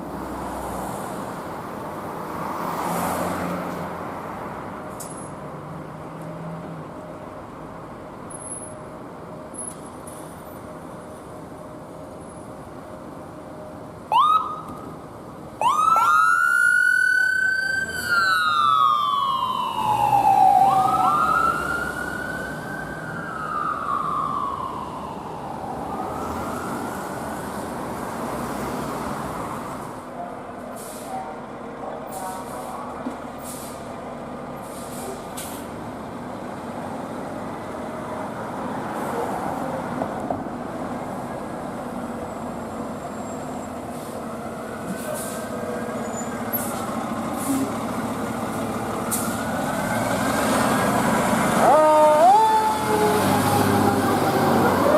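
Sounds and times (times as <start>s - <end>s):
traffic and heavy engine noise: 0.0s - 54.9s
emergency siren wailing: 14.1s - 14.8s, 15.6s - 27.6s, 50.9s - 54.9s.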